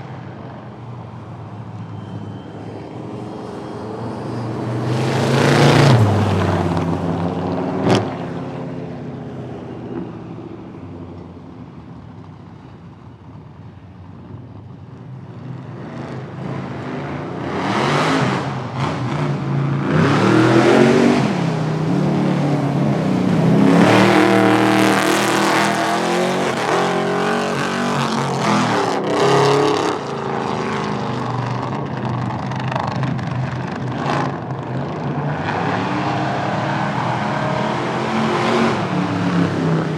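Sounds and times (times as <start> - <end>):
engines revving: 1.7 - 11.2, 15.5 - 39.9
car passing by: 2.0 - 8.8.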